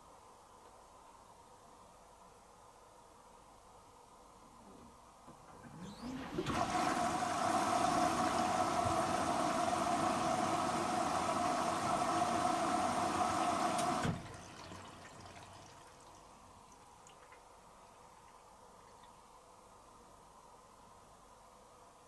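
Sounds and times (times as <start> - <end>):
water rushing into washing machine: 5.5 - 17.4.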